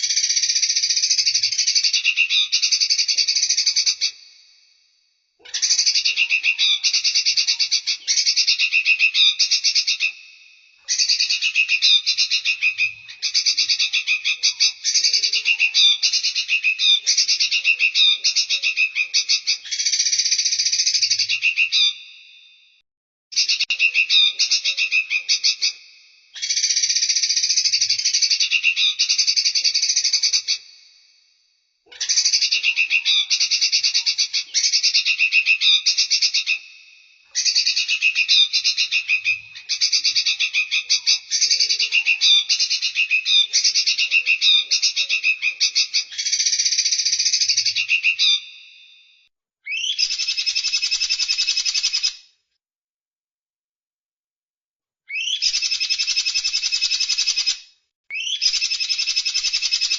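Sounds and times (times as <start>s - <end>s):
songbird trilling: 5.4s - 10.2s, 10.9s - 22.1s, 23.4s - 25.8s, 26.4s - 30.7s, 31.9s - 36.7s, 37.4s - 48.6s, 49.7s - 52.2s, 55.1s - 59.9s.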